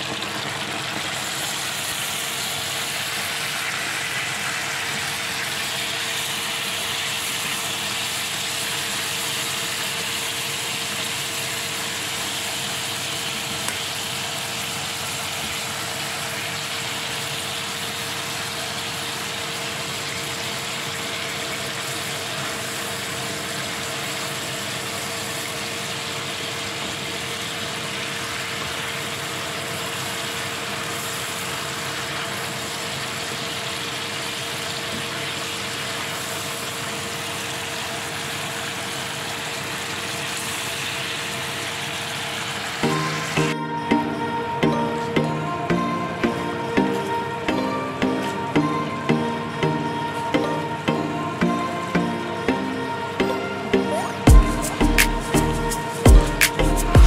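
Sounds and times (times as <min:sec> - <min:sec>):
chicken sizzling in a frying pan: 0:00.0 - 0:43.6
steady hum: 0:42.8 - 0:57.0.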